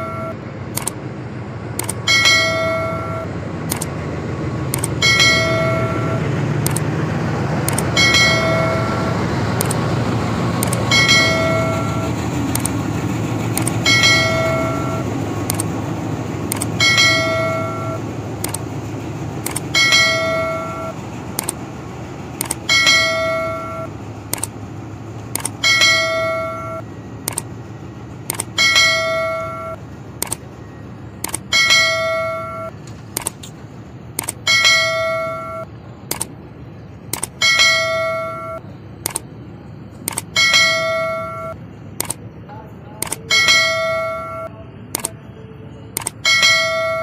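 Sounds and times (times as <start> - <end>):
passenger train rumbling past: 0.0 - 47.0
bell-like chime: 37.4 - 38.6, 40.4 - 41.6.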